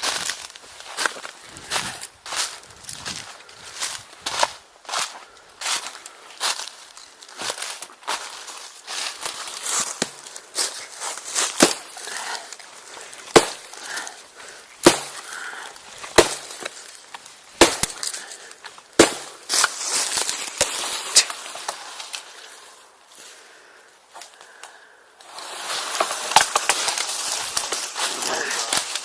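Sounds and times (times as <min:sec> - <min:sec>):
axe chopping wood: 0:11.5 - 0:12.0, 0:13.3 - 0:14.0, 0:14.8 - 0:15.4, 0:16.0 - 0:16.8, 0:17.6 - 0:18.2, 0:19.0 - 0:21.3
rustling and crackling: 0:25.2 - 0:29.0.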